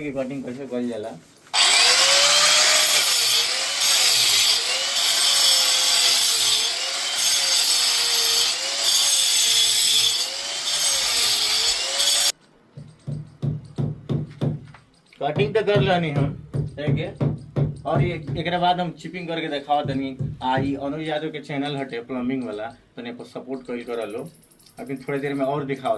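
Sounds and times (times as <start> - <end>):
disc cutter grinding into wall: 1.6 - 12.3.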